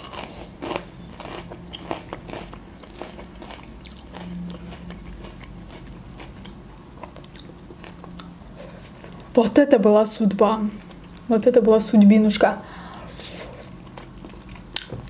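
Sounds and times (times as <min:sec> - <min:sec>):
chewing with wet mouth clicks: 0:00.6 - 0:09.3, 0:10.8 - 0:11.3, 0:13.6 - 0:15.0.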